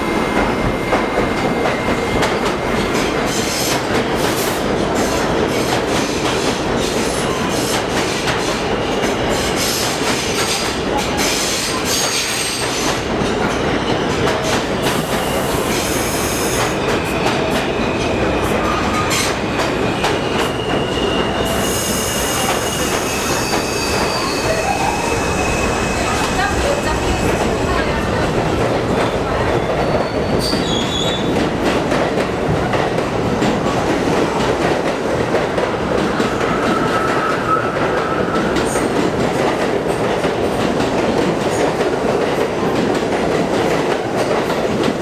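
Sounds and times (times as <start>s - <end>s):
wheels squealing on rails: 0.0s - 28.2s, 29.0s - 31.5s, 36.1s - 39.0s.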